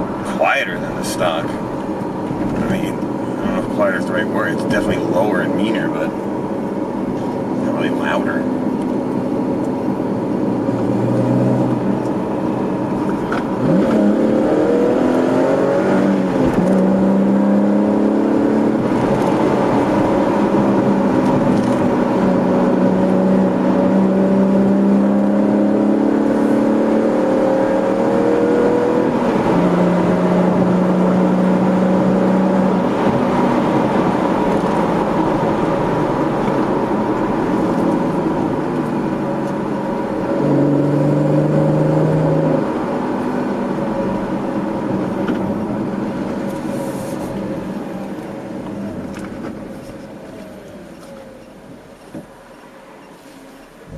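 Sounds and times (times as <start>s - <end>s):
car engine accelerating through gears: 0.0s - 53.9s.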